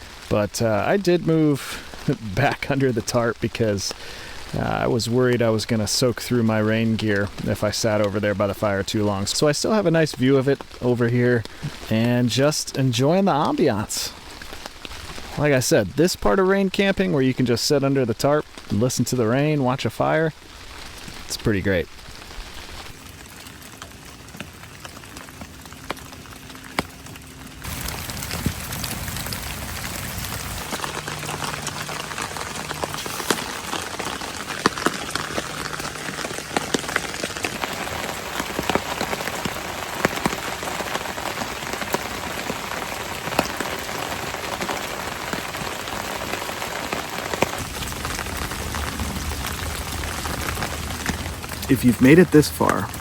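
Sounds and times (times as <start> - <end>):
heavy rain falling: 0.0 - 53.0
raindrop hits: 0.0 - 53.0.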